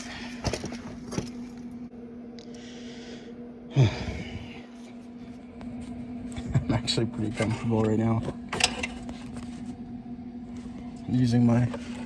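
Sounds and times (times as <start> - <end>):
man breathing: 0.0 - 0.6, 2.4 - 4.8
steady low hum: 0.0 - 12.0.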